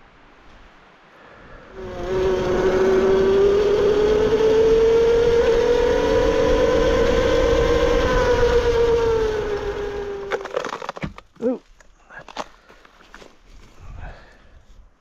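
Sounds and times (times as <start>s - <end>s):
motor vehicle droning with whine: 1.3s - 11.0s.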